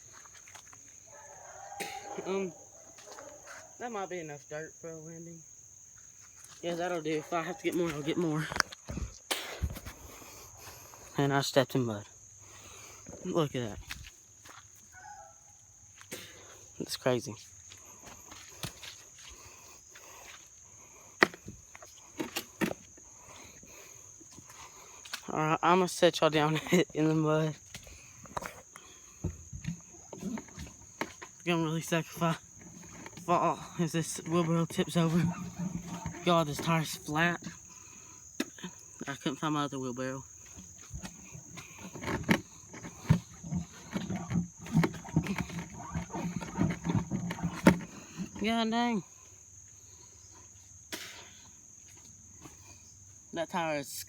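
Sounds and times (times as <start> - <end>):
footsteps: 0.0 - 3.8, 6.0 - 11.1, 13.1 - 15.2, 17.4 - 20.5, 27.5 - 37.8
insects droning: 0.0 - 54.0
wheelbarrow pushed through mud: 21.2 - 38.0, 38.6 - 49.2
sharp knocks and crunches: 27.6 - 37.7, 40.4 - 48.6.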